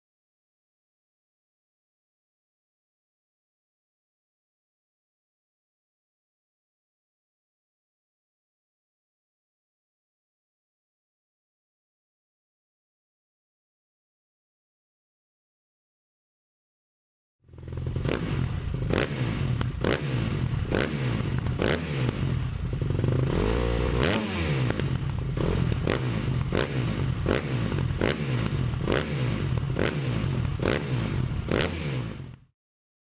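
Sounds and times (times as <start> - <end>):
motorcycle engine running: 17.5 - 32.5.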